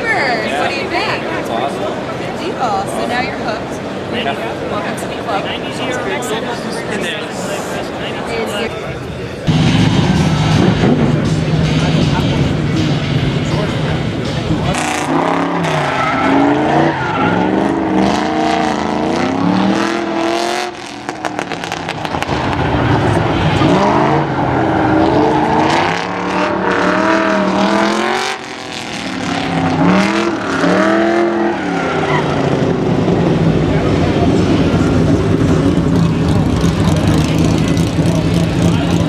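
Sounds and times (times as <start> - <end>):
car engine revving: 9.3 - 39.0.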